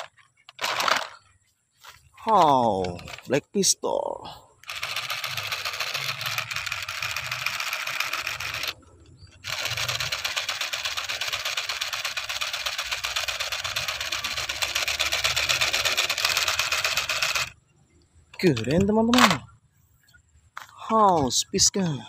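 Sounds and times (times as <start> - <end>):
toy pistol mechanical rattle: 0.0 - 1.3, 4.6 - 17.6, 18.4 - 19.5.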